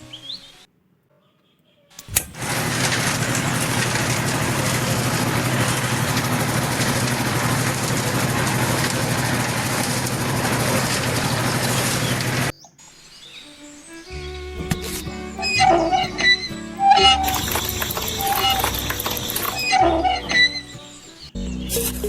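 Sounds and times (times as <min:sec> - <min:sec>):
small motor whirring: 0:02.0 - 0:12.5, 0:17.0 - 0:20.6.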